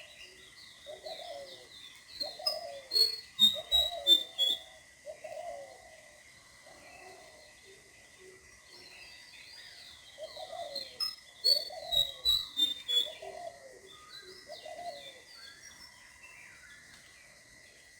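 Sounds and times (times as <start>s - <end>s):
birds calling: 0.9s - 5.6s, 10.2s - 13.5s
high quick bird chirps: 2.2s - 4.6s, 11.0s - 13.1s
thin steady high tone: 2.2s - 4.8s.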